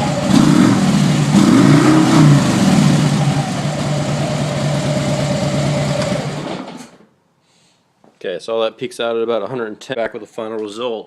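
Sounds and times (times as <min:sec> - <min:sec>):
motorcycle engine revving and idling: 0:00.0 - 0:06.8.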